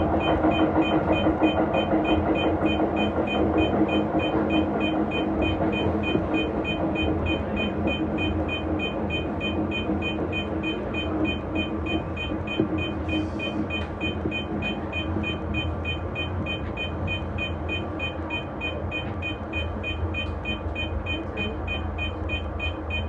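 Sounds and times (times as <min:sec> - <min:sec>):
train rumble and motor hum: 0:00.0 - 0:23.0
two-tone electronic beep: 0:00.2 - 0:23.0.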